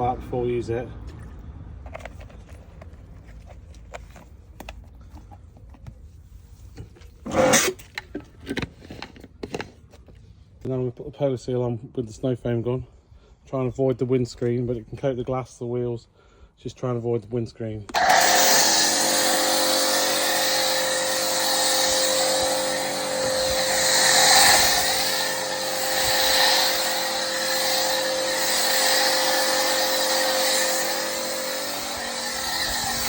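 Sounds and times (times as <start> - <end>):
pressure washer motor humming: 18.0 - 33.0
spray hissing: 18.2 - 33.0.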